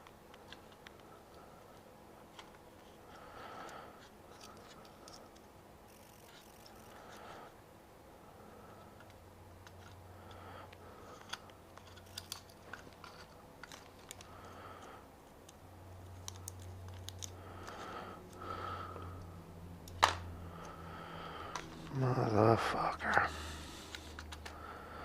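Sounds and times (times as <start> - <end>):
hands handling plastic parts: 10.7 - 14.3, 15.3 - 18.4, 23.9 - 24.6.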